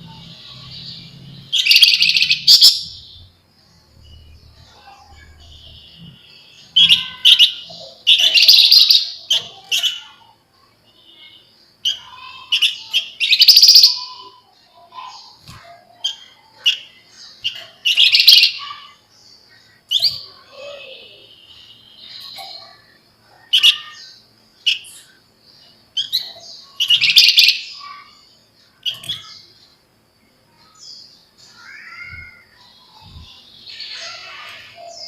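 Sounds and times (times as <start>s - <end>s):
bird chattering trills: 4.3s - 10.2s, 11.8s - 25.2s.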